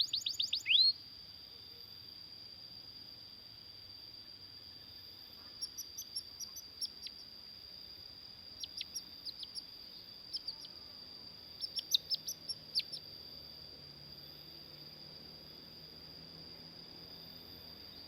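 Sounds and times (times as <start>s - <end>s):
steady high-pitched whine: 0.0s - 18.0s
canary chirping: 8.6s - 9.6s, 10.3s - 10.7s, 11.6s - 13.0s.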